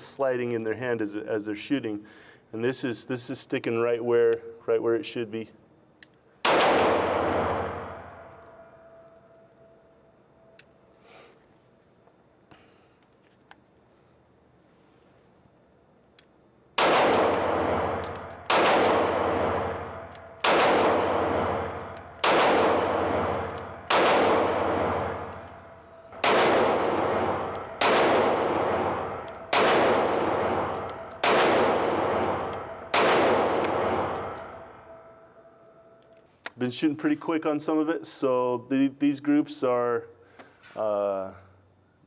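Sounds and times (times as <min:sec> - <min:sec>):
pistol shots echoing: 0:06.4 - 0:09.0, 0:16.8 - 0:35.2.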